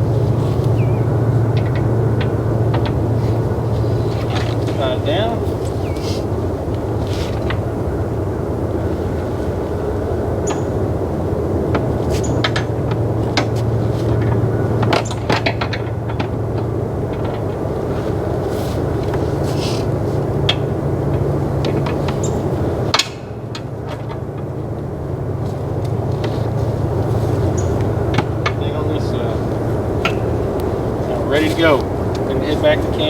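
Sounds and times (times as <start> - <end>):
four-wheeler engine idling: 0.0 - 33.0
straps and buckles knocking on metal: 27.7 - 28.7.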